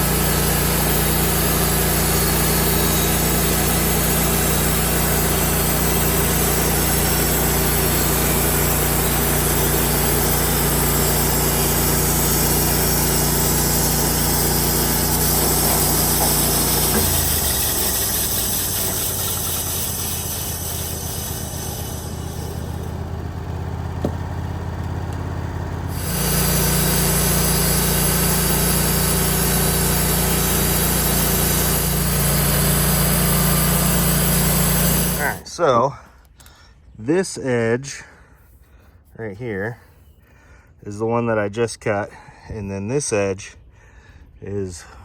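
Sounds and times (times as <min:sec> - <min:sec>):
sawmill engine running under load: 0:00.0 - 0:35.6.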